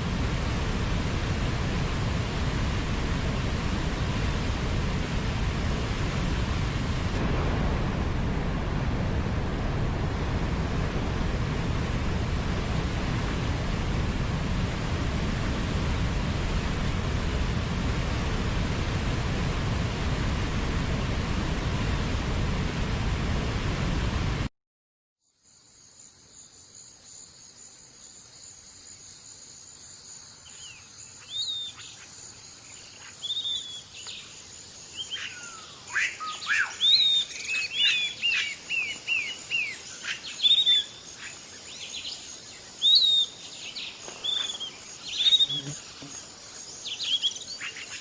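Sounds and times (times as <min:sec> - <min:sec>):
rushing noise with low rumble: 0:00.0 - 0:24.5.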